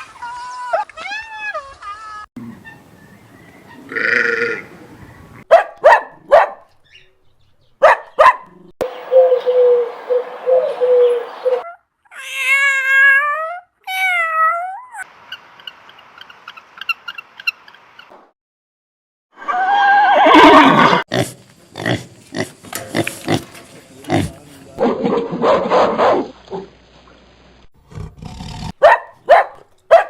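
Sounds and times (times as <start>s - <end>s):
dog barking: 5.5s - 6.7s, 7.8s - 8.5s, 24.9s - 26.7s, 28.8s - 30.0s.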